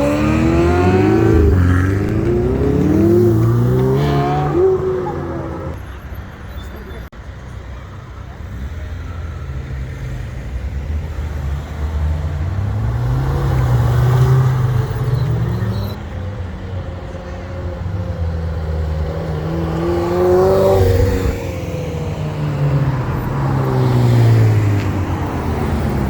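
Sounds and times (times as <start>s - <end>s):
car engines accelerating hard: 0.0s - 5.8s, 10.4s - 16.0s, 18.2s - 26.0s.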